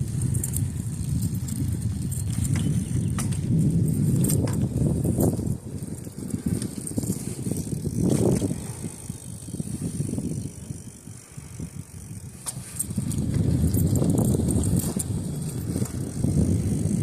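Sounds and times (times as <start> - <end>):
bicycle rolling on a trail: 0.0 - 17.0.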